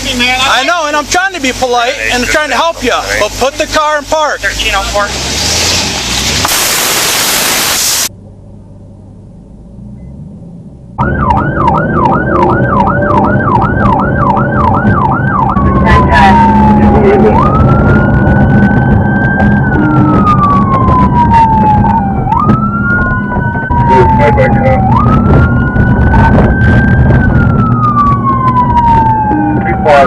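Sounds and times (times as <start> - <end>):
engine and road noise: 0.0 - 30.0
loud rushing noise: 4.5 - 8.1
police siren yelp and wail: 11.0 - 30.0.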